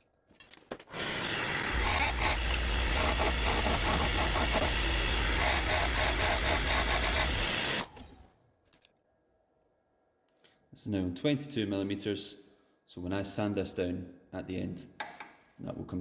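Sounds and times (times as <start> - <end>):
chisel cutting spinning wood: 0.9 - 8.2
wood lathe running: 0.9 - 8.2.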